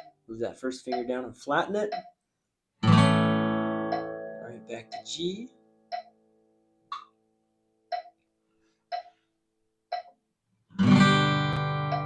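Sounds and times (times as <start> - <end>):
metronome clicking: 1.8 - 2.1, 3.8 - 4.2, 4.8 - 5.3, 5.9 - 6.1, 11.8 - 12.0
acoustic guitar chord strummed: 2.8 - 5.9, 10.8 - 12.0.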